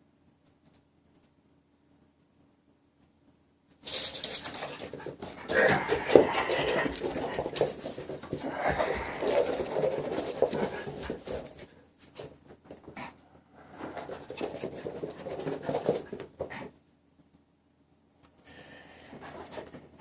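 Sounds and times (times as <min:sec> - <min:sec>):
dog panting: 0:04.4 - 0:11.7.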